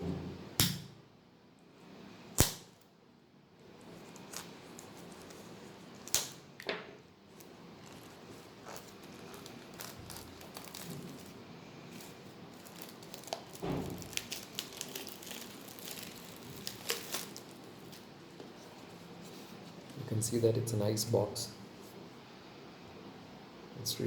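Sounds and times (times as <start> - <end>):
packaging crinkling and rustling: 3.7 - 20.0.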